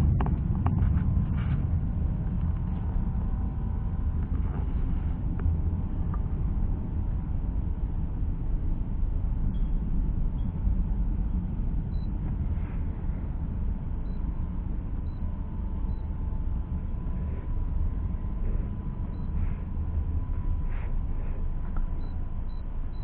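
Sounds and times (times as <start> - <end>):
faint steady tone: 0.0 - 23.0
vehicle rumble: 0.0 - 23.0.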